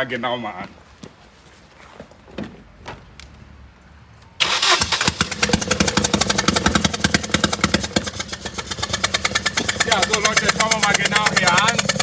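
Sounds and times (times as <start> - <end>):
car engine ticking: 4.4 - 12.0.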